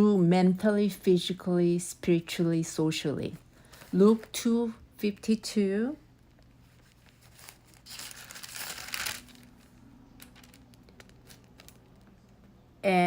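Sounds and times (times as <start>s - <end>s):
thin pages rustling: 6.3s - 12.4s.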